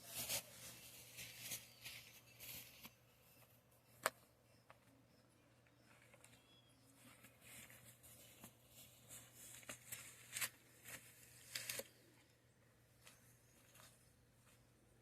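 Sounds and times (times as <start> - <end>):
faint rustling: 5.6 - 14.8.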